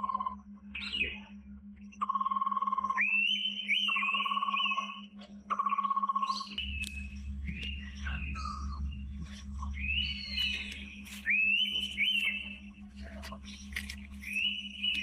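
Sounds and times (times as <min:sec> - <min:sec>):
pulsing animal trill: 0:00.0 - 0:01.4, 0:02.0 - 0:15.0
high slurred whistled notes: 0:06.5 - 0:12.7.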